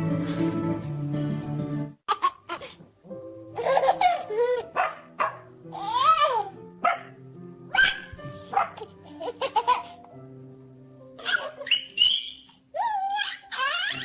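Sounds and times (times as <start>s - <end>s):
soft background music: 0.0s - 14.0s
baby giggling and squealing: 3.6s - 4.8s, 5.7s - 6.6s, 7.7s - 10.0s, 11.2s - 14.0s.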